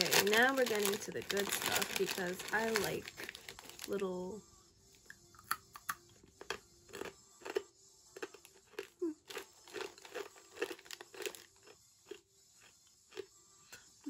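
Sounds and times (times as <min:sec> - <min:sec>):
crunchy snack being chewed: 0:05.4 - 0:14.0.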